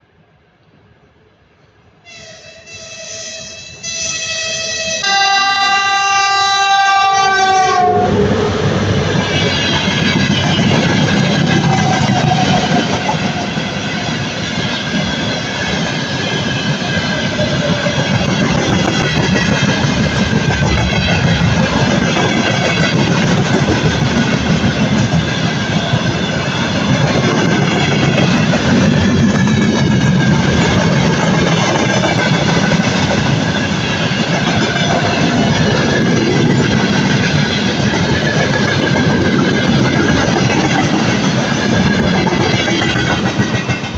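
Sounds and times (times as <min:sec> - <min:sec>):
locomotive horn: 0:02.1 - 0:08.3
train wheels clacking over rail joints: 0:09.2 - 0:43.9.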